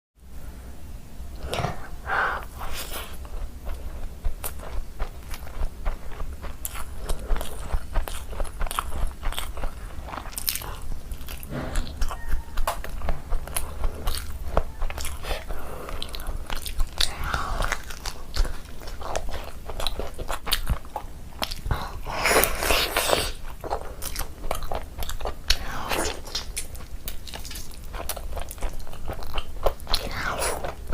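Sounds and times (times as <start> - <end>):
low hum: 0.2 - 22.7
person biting and chewing: 1.4 - 30.9.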